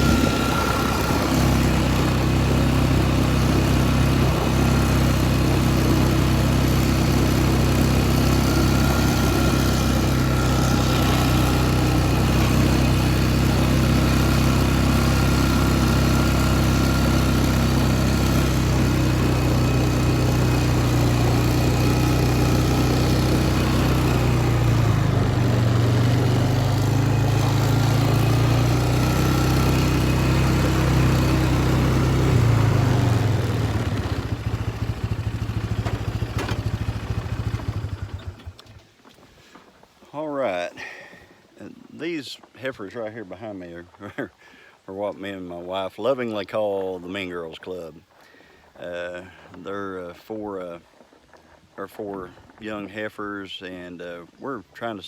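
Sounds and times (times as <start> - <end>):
atv engine running: 0.0 - 42.1.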